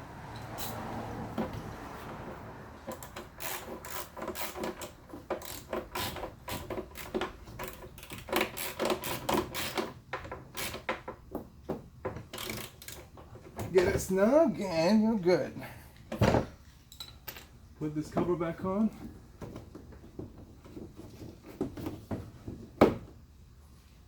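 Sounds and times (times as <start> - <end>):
tool clicking and scraping: 2.8 - 11.0.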